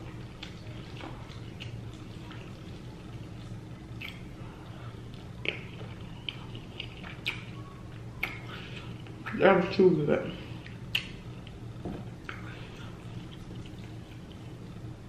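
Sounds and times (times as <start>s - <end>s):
chewing food: 0.0s - 9.4s, 10.6s - 14.9s
low steady hum: 0.0s - 15.0s
wet mouth smacking and clicking: 4.0s - 4.3s, 5.4s - 7.5s, 8.2s - 8.4s, 10.9s - 11.6s.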